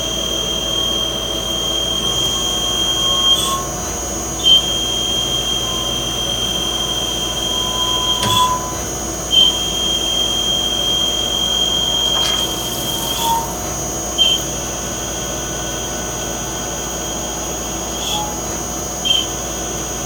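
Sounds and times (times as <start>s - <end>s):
lathe high whine: 0.0s - 20.0s
lathe short chirp: 1.7s - 14.5s.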